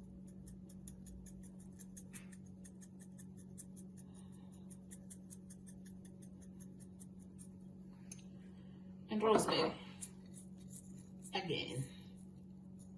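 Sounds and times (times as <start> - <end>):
low steady hum: 0.0 - 12.9.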